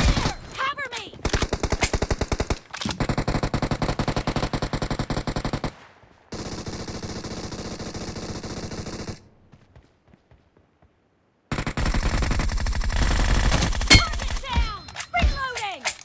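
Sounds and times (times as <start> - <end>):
video game automatic gunfire: 1.2 - 9.2, 11.5 - 14.6.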